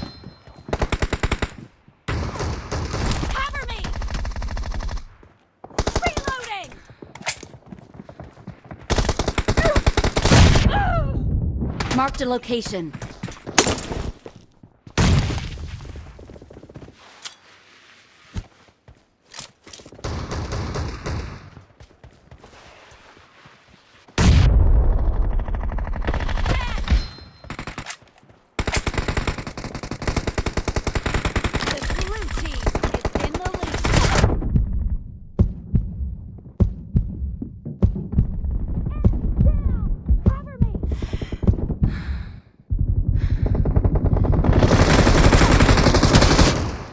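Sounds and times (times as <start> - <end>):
video game automatic gunfire: 8.8 - 10.4, 42.8 - 46.9.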